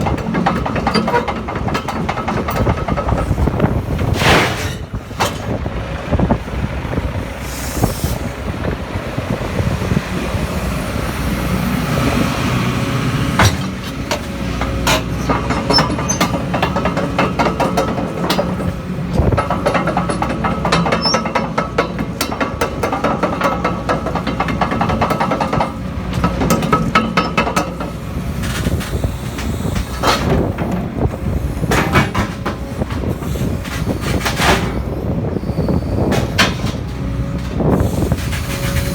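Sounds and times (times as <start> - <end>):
metallic clanks and knocks: 0.0 - 5.6, 13.4 - 28.8, 31.6 - 34.8, 36.0 - 37.7
diesel engine drone: 0.0 - 38.9.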